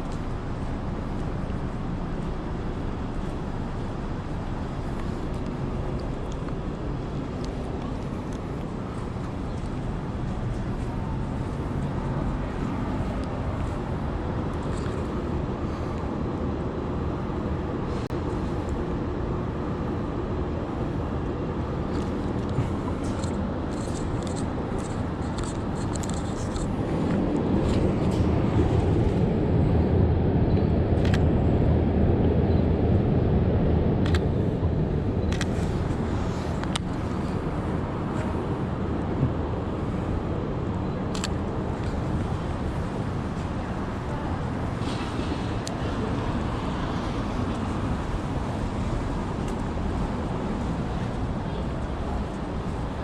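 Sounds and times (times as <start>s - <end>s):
traffic noise: 0.0s - 53.0s.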